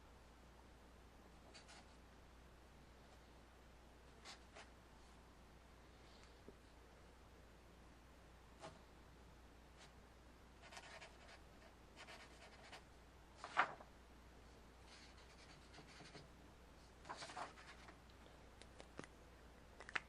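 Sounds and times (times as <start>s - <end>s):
pen scratching on paper: 10.6s - 12.8s, 14.9s - 16.2s.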